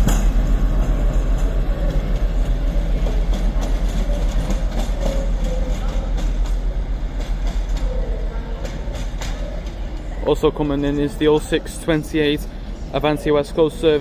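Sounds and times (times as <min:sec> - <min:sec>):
wheels clicking over rail joints: 0:00.0 - 0:11.1
diesel locomotive rumbling: 0:00.0 - 0:14.0.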